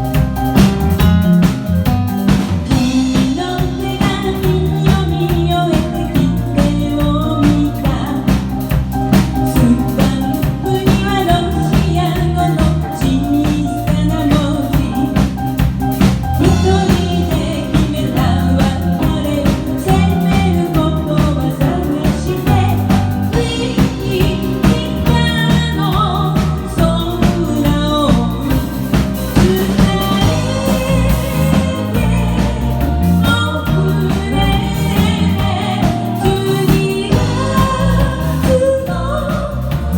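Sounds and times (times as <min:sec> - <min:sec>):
pop band playing: 0:00.0 - 0:39.9
person singing melody: 0:16.4 - 0:39.9.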